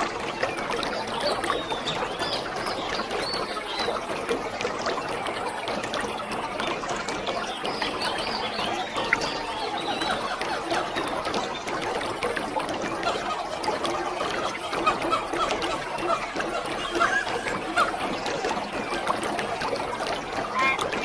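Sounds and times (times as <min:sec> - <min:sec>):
short high chirps: 0:16.8 - 0:17.6.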